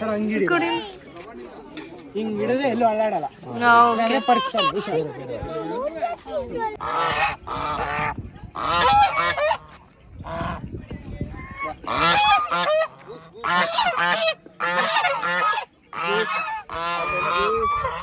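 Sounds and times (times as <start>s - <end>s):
geese honking: 2.4s - 5.1s, 6.8s - 10.6s, 11.5s - 18.0s.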